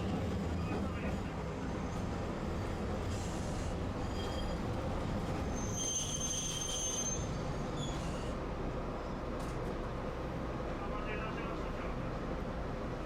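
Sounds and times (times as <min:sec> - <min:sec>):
tram wheels squealing on rails: 0:01.6 - 0:09.2.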